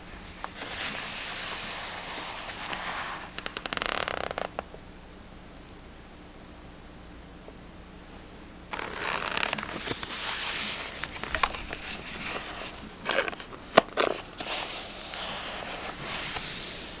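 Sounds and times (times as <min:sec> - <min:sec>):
paper rustling and crinkling: 0:00.0 - 0:04.6, 0:08.7 - 0:17.0.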